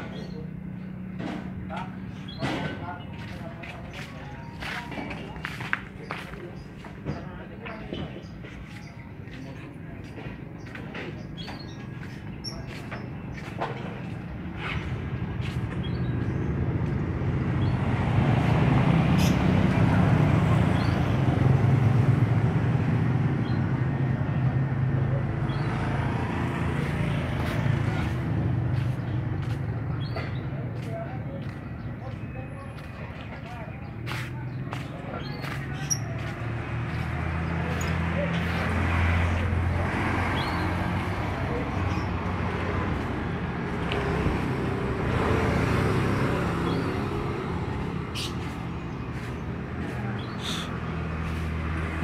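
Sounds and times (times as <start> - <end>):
low engine or traffic rumble: 0.0 - 52.0.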